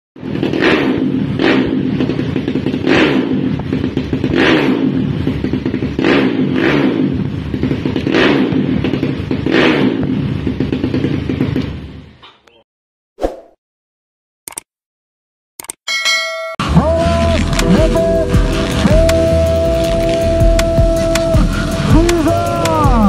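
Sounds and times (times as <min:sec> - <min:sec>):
motorcycle engine revving: 0:00.2 - 0:12.0, 0:16.6 - 0:23.0.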